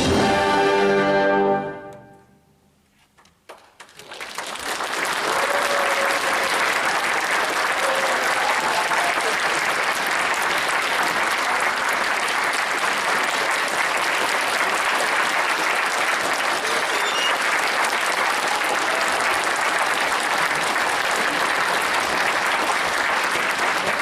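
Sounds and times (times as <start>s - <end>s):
audience applauding: 3.2s - 24.0s.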